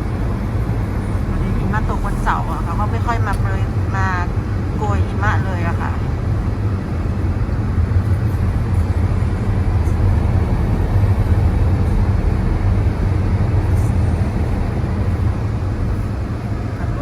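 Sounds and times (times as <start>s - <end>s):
car driving rumble: 0.0s - 17.0s.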